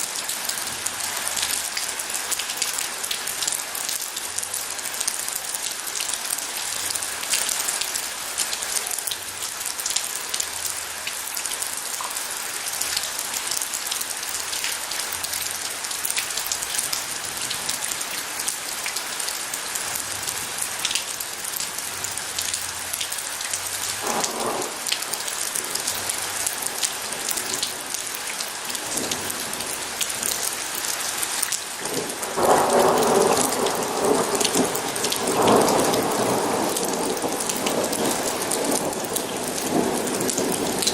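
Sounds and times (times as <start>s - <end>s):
heavy rain: 0.0s - 40.9s
thunder rumbling: 24.0s - 26.2s, 31.8s - 40.9s.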